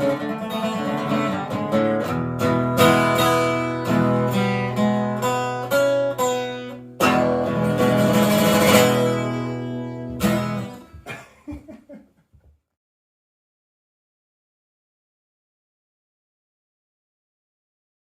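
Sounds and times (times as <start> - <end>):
acoustic guitar strumming: 0.0 - 11.2.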